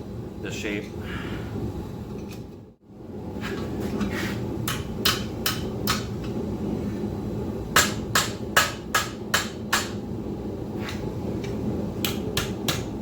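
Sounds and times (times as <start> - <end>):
hammer striking steel on anvil: 4.6 - 6.2, 7.8 - 10.0, 12.0 - 13.0.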